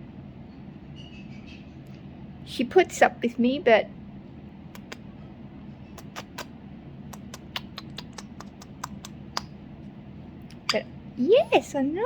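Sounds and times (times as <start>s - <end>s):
parrot beak clicking: 4.8s - 5.0s, 6.0s - 6.5s, 7.1s - 9.6s.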